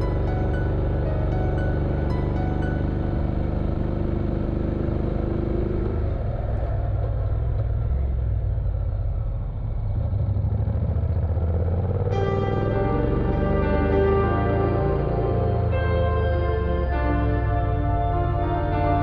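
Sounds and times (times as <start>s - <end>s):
motorcycle engine running: 0.1s - 17.0s.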